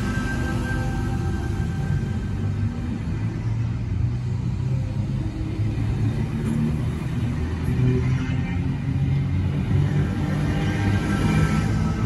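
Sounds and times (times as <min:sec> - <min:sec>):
train rumbling past: 0:00.0 - 0:07.6.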